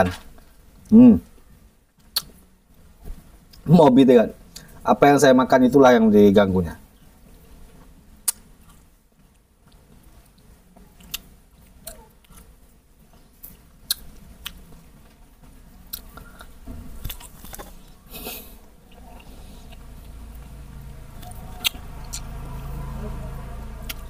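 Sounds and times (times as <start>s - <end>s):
person chewing: 2.0s - 2.4s, 8.2s - 8.9s, 9.6s - 15.2s, 15.8s - 22.4s.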